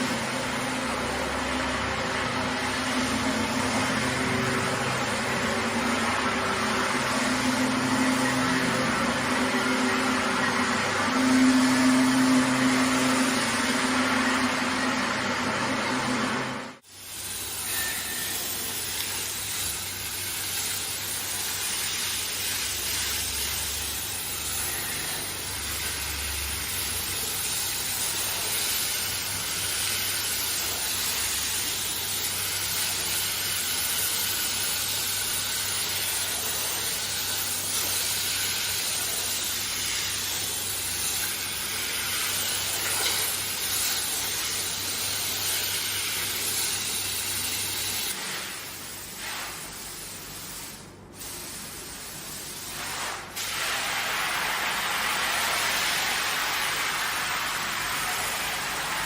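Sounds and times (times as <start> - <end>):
cleaning machine motor humming: 0.0 - 16.8.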